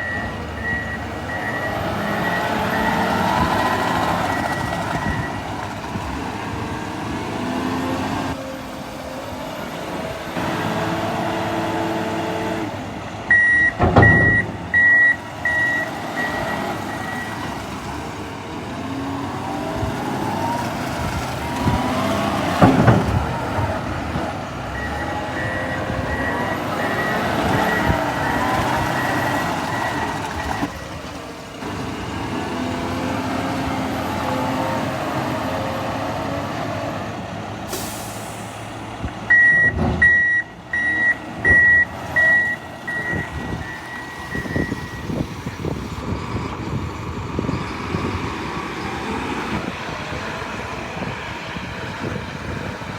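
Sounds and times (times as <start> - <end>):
diesel loader engine revving: 0.0 - 52.9
heavy thuds: 13.3 - 15.7
backup alarm beeping: 13.3 - 17.3, 39.3 - 45.2.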